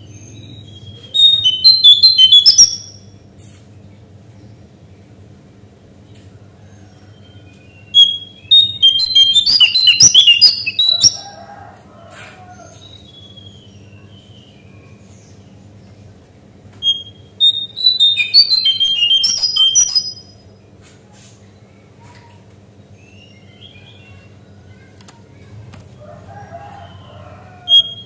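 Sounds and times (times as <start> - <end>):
bird chirping rapidly: 0.0 - 3.2, 7.9 - 11.3, 16.8 - 20.4, 26.8 - 28.0.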